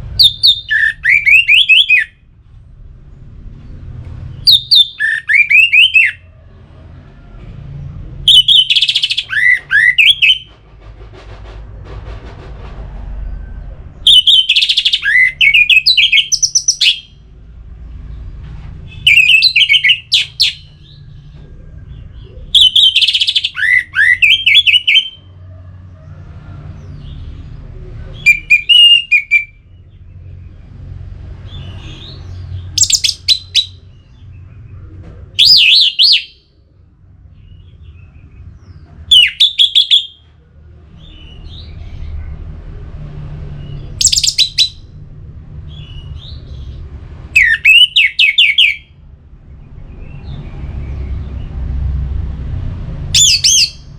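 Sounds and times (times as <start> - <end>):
faint low rumble: 2.1 - 4.8, 10.5 - 14.3.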